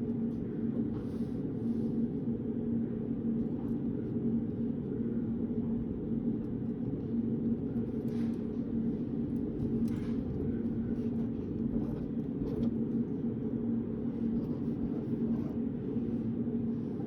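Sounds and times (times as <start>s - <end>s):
low droning room hum: 0.0s - 17.0s.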